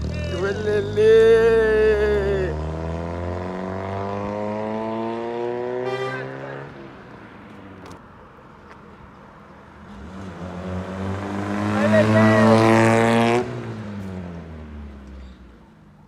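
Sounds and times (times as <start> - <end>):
car engine revving: 0.0 - 6.8, 9.8 - 15.1.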